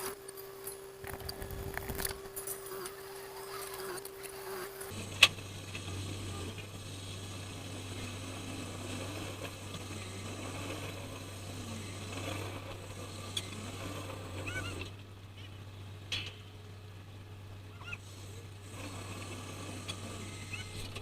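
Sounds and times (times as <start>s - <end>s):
boat engine drone: 0.0s - 21.0s
mechanical deck noise: 0.0s - 21.0s
short high squeaks: 14.3s - 15.0s, 20.1s - 21.0s.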